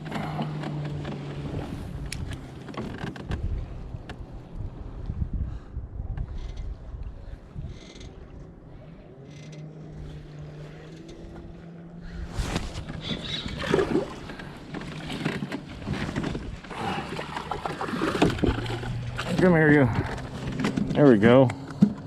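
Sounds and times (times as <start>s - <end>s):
water splashing around kayak: 0.0s - 4.6s, 9.6s - 22.0s.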